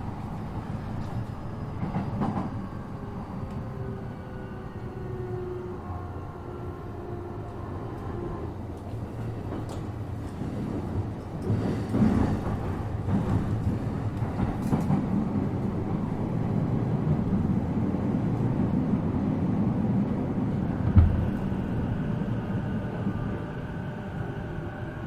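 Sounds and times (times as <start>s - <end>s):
train wheels rumbling on track: 0.0s - 25.0s
train thump: 20.8s - 21.6s.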